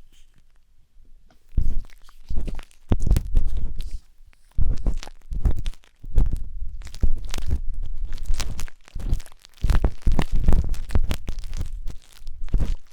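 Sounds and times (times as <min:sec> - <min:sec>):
wooden stick scratching microphone: 0:01.5 - 0:07.6.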